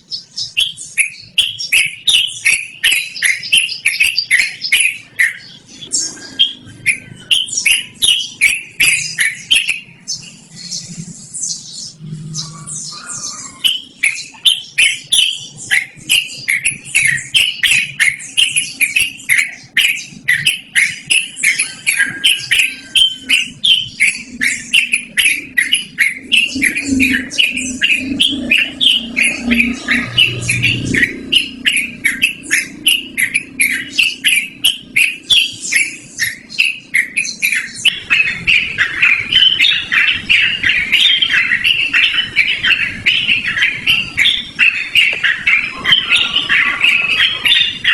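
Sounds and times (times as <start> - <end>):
bird singing chirping notes: 0.0 - 47.9.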